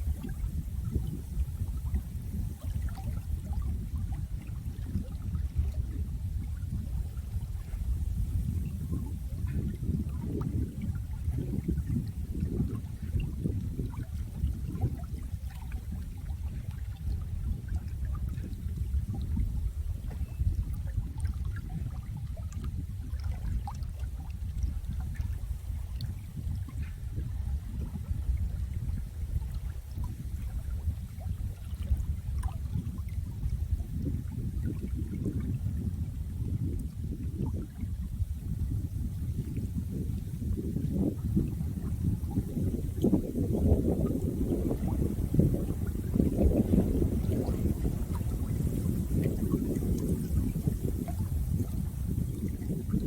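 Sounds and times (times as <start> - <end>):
small splashes and drips: 0.0 - 28.2, 28.8 - 53.0
running water burbling: 36.7 - 53.0.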